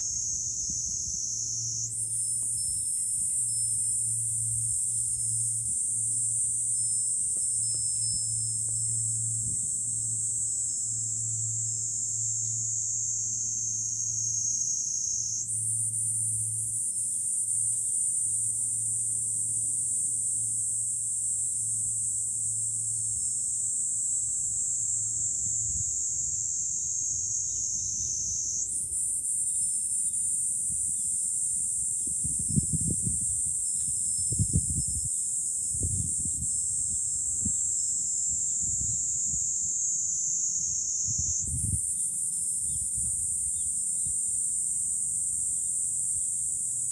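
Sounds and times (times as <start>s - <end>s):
cicadas shrilling: 0.0s - 46.9s
wind rumbling on microphone: 31.8s - 39.6s, 41.0s - 44.3s.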